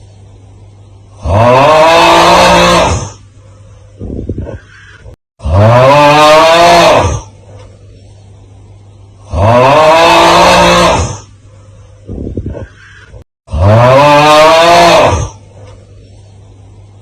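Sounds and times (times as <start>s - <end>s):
drawn-out cry: 1.2s - 3.2s, 4.4s - 7.4s, 9.2s - 11.3s, 12.5s - 15.4s
low hum: 6.9s - 9.8s.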